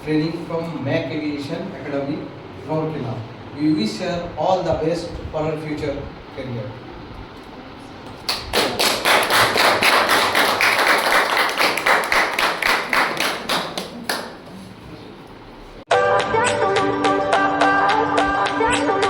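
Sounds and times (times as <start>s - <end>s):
people clapping in unison: 8.2s - 14.6s.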